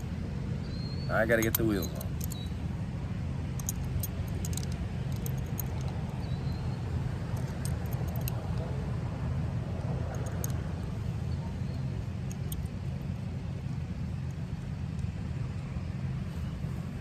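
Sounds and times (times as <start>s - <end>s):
metallic clicks of skateboard parts: 1.4s - 2.5s, 3.6s - 6.3s, 7.3s - 8.6s, 10.1s - 10.6s.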